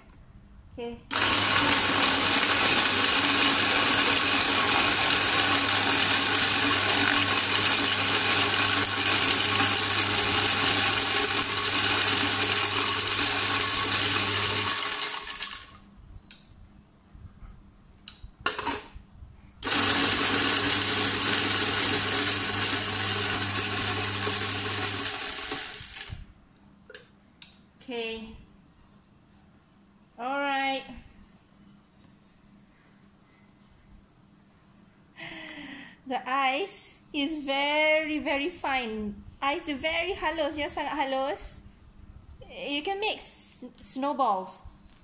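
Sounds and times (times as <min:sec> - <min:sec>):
electric ice crusher grinding ice: 0:01.1 - 0:15.8, 0:19.6 - 0:26.2.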